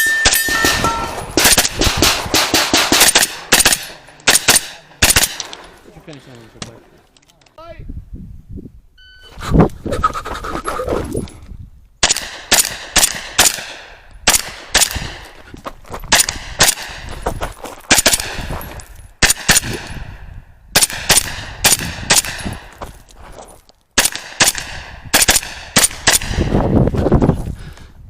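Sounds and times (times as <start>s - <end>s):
carbine gunshots: 0.4s - 5.6s, 12.0s - 15.4s, 16.1s - 17.1s, 17.9s - 18.5s, 19.2s - 20.0s, 20.7s - 22.7s, 24.0s - 26.5s.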